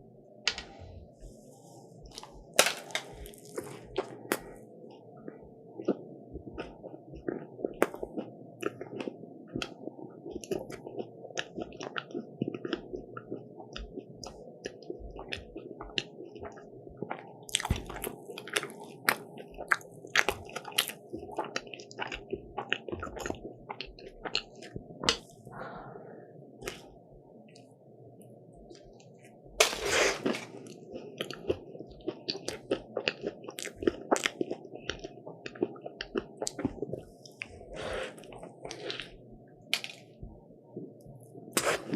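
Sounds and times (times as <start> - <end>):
crunchy chewing and biting: 2.1 - 4.6, 5.8 - 25.4, 29.6 - 40.1.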